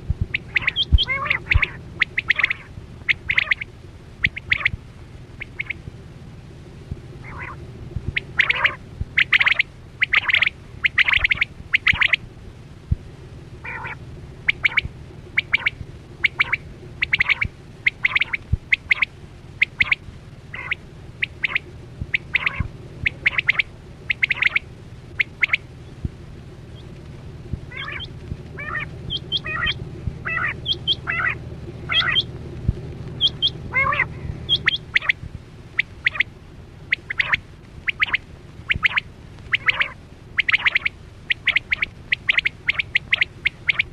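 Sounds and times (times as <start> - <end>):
steady low hum: 0.0 - 43.9
quail calling: 0.2 - 5.9, 7.2 - 12.3, 13.6 - 26.0, 26.7 - 27.0, 27.6 - 32.4, 33.1 - 43.9.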